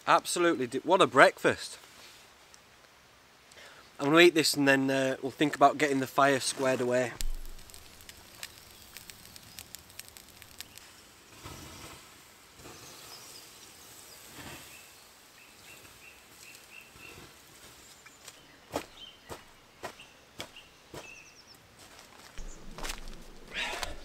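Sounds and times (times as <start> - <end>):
sharp click: 7.2 - 10.8
handling clicks and rustles: 7.2 - 10.9
bird chirping: 22.4 - 24.0.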